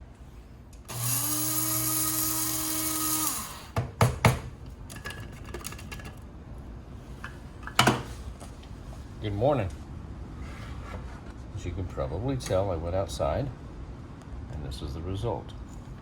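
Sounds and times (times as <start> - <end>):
electric coffee grinder whirring: 0.9 - 3.8.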